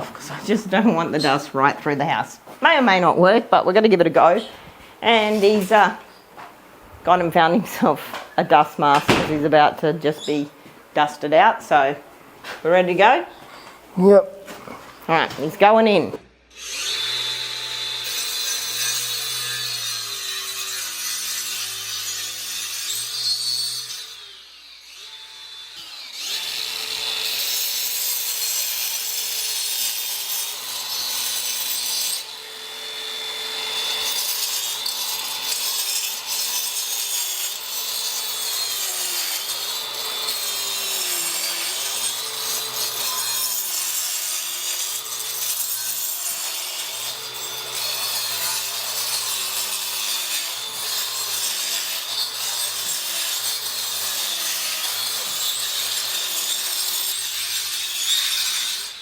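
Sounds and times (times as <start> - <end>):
power saw cutting wall: 16.5 - 59.0.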